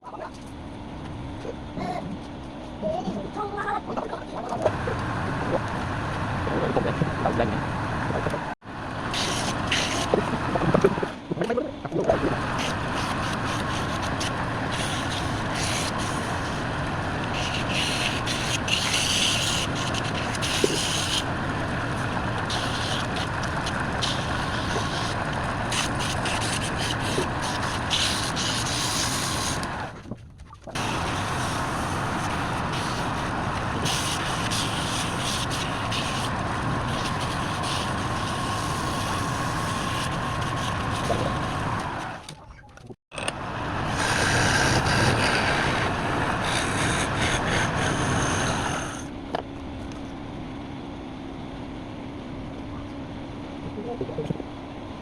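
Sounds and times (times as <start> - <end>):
tool scraping spinning wood: 4.6 - 11.4, 12.0 - 30.1, 30.7 - 42.4, 43.2 - 49.2
wood lathe running: 43.2 - 49.1.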